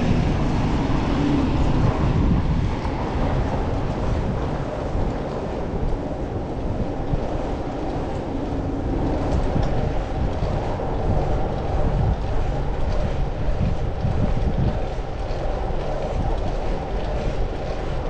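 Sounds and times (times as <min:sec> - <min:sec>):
bicycle tyre and road noise: 0:00.0 - 0:18.0
wind buffeting microphone: 0:00.0 - 0:18.0.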